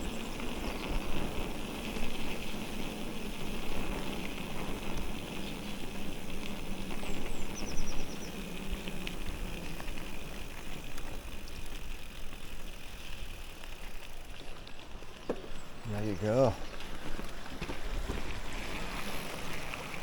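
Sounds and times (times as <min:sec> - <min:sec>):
wind noise: 0:00.0 - 0:13.5
tyre rumble on trail: 0:00.0 - 0:20.0.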